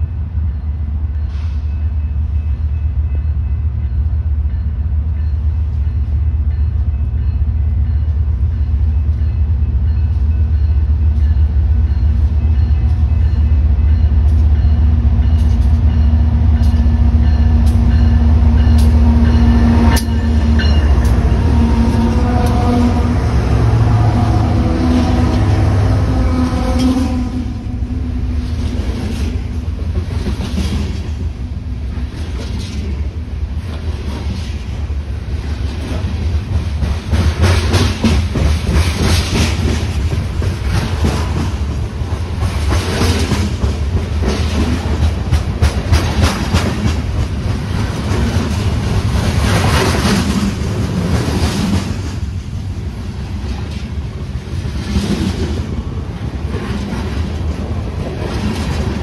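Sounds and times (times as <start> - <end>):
steel wheels rumbling on rail: 0.0 - 59.0
wheels clacking over rail joints: 35.6 - 52.4.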